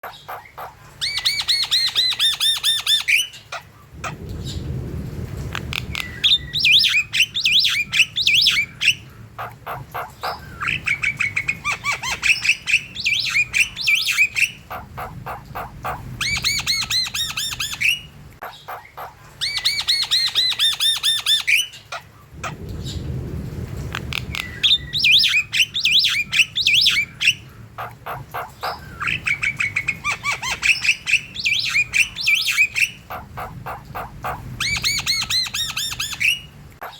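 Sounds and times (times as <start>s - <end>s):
birds chattering and squawking: 0.0s - 36.9s
low rumble: 3.8s - 18.4s, 22.3s - 30.2s, 31.0s - 36.8s.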